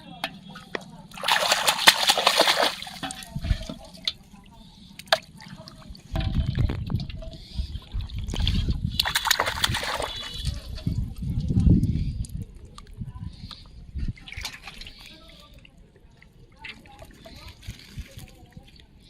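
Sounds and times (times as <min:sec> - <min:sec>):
low water sloshing and rumbling: 0:01.0 - 0:14.9
loud water splash: 0:01.2 - 0:03.1, 0:09.0 - 0:10.3.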